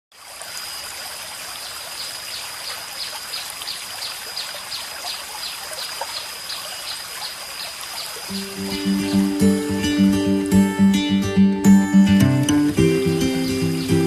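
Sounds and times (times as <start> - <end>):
waterfall trickling and splashing: 0.1 - 14.0.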